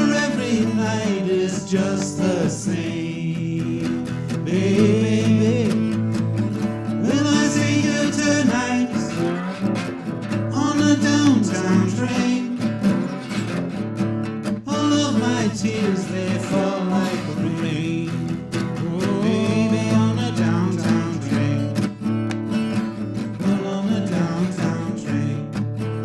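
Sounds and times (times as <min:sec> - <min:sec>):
guitar strummed and plucked: 0:00.0 - 0:26.0.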